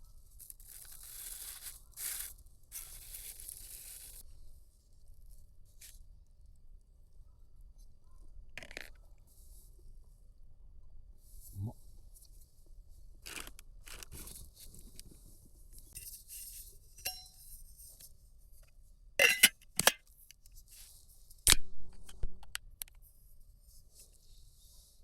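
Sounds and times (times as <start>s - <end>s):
packaging crinkling and scraping: 13.2s - 15.1s.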